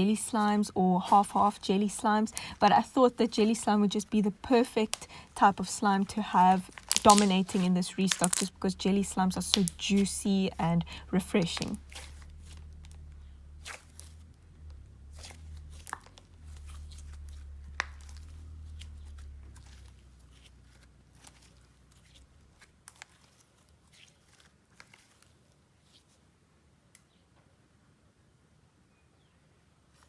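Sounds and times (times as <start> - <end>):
low hum: 0.0 - 21.1
slime squished by hand: 6.4 - 8.6, 9.4 - 10.2, 11.3 - 13.0, 15.1 - 25.3.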